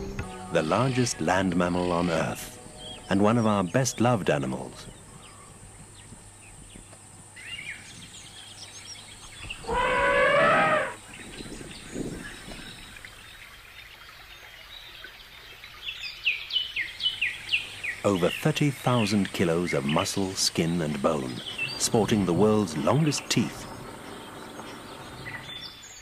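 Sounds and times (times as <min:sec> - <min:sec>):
birds chirping: 0:00.0 - 0:26.0
elephant trumpeting: 0:09.6 - 0:11.0.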